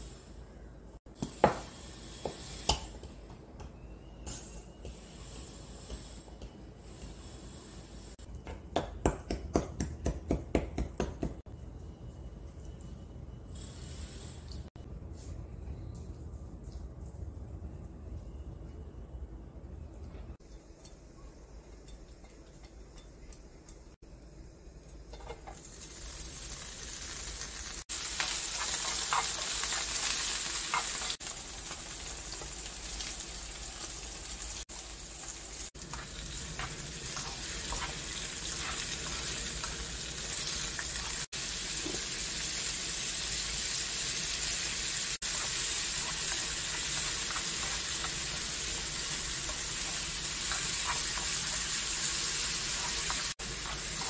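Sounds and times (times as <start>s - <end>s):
food sizzling in hot oil: 24.8s - 54.0s
spatula scraping and tapping pan: 28.2s - 31.2s, 35.8s - 39.8s, 45.2s - 54.0s.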